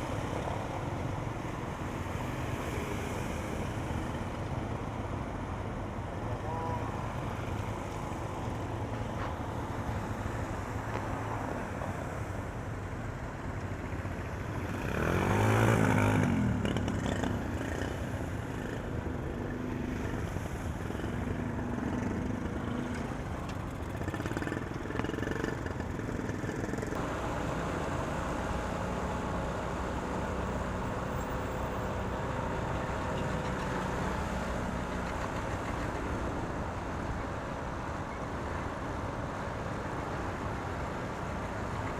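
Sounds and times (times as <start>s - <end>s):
vehicle engines running: 0.0s - 41.9s.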